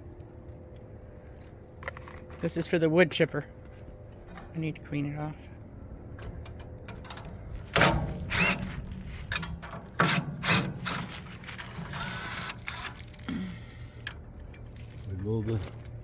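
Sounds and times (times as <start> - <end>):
brushing hissing scrape: 7.5 - 13.2.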